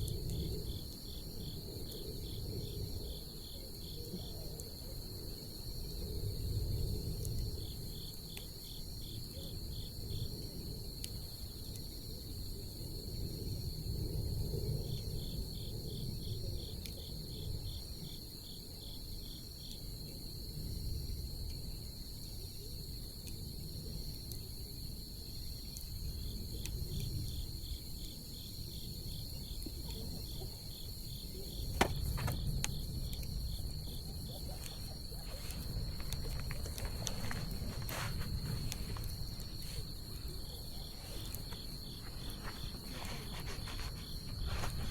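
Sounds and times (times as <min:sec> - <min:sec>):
crickets chirping: 0:00.0 - 0:44.9
burning wood crackle: 0:23.3 - 0:44.9
bonfire rumble: 0:28.8 - 0:44.9.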